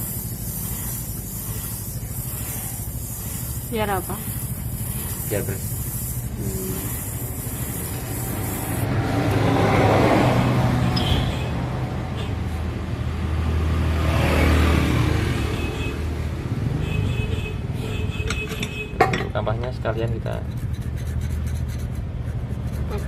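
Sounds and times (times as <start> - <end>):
sandpaper rasping on metal housing: 0.0 - 9.0, 19.8 - 23.0.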